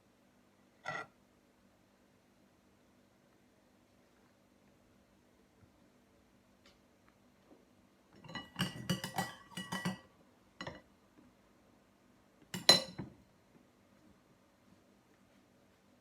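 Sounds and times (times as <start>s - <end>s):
cutlery clinking against dishes: 8.2s - 10.8s, 12.5s - 13.1s.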